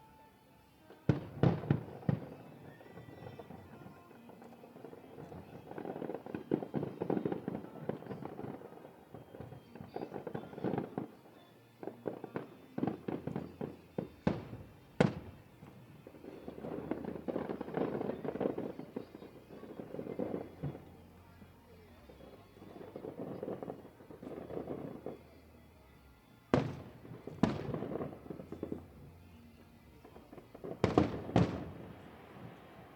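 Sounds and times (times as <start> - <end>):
fireworks crackling and popping: 0.0 - 32.9
loud firework bangs: 4.7 - 11.2, 11.8 - 20.9, 26.5 - 29.2, 29.8 - 32.9.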